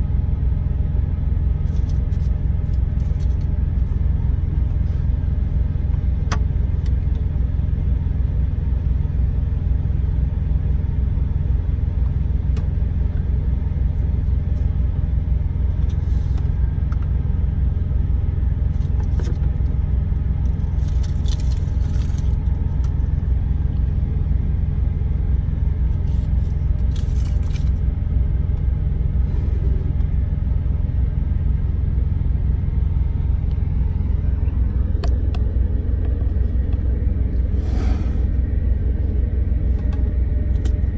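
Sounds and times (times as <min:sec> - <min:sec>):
truck engine rumble inside cab: 0:00.0 - 0:40.9
clinks and rattles: 0:01.7 - 0:03.5, 0:20.4 - 0:23.0, 0:26.0 - 0:27.8.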